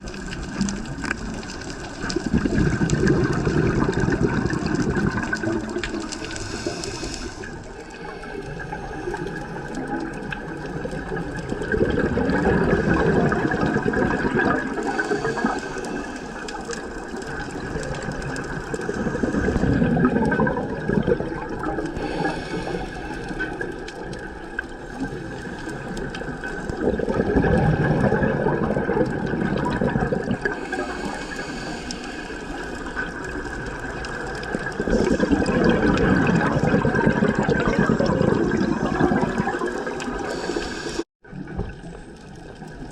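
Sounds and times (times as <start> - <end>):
exhaled bubbles rushing: 0.0 - 42.9
regulator inhale hiss: 6.2 - 9.6, 14.8 - 17.0, 21.9 - 23.7, 30.5 - 33.1, 40.1 - 41.1.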